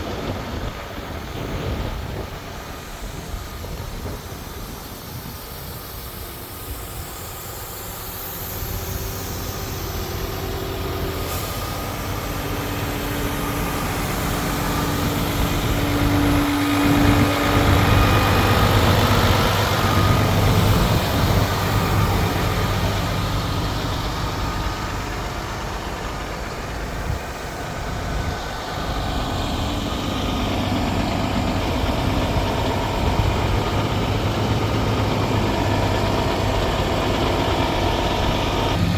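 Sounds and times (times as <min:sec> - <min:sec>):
diesel truck engine running: 0:00.0 - 0:38.9.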